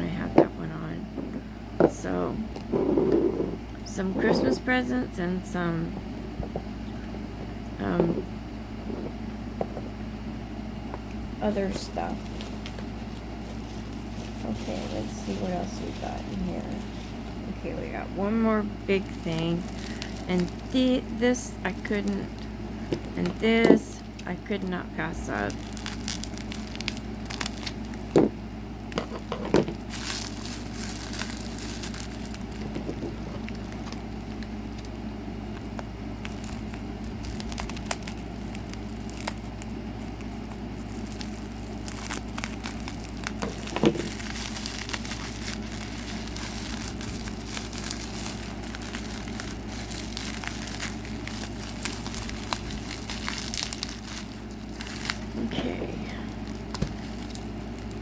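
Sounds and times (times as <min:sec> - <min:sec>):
packaging crinkling and tearing: 0:11.1 - 0:17.4, 0:19.0 - 0:28.2, 0:28.9 - 0:58.0.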